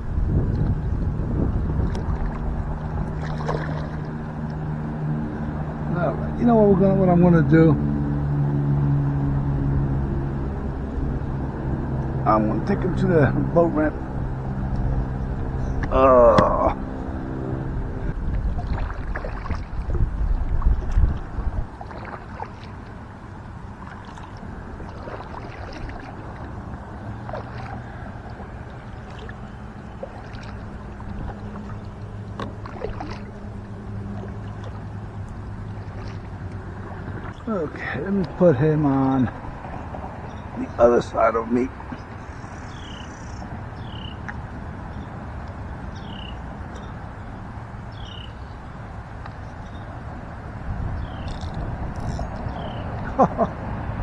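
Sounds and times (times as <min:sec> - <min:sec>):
low rumble: 0:00.0 - 0:40.6
low background rush: 0:00.0 - 0:54.0
water lapping against hull: 0:00.0 - 0:54.0
small water splashes: 0:01.5 - 0:10.0, 0:18.3 - 0:46.9
kayak paddle strokes: 0:01.7 - 0:05.0, 0:18.1 - 0:38.4.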